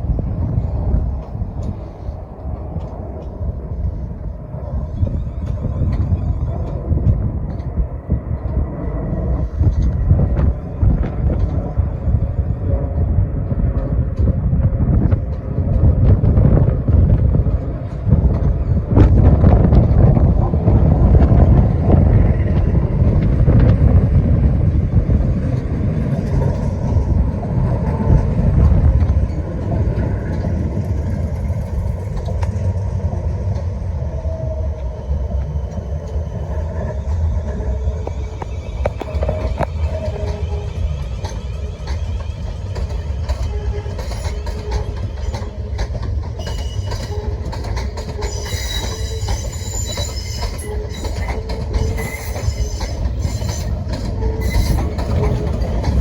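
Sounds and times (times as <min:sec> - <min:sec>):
train rumbling: 0:00.0 - 0:56.0
wheels clicking over rail joints: 0:37.0 - 0:56.0.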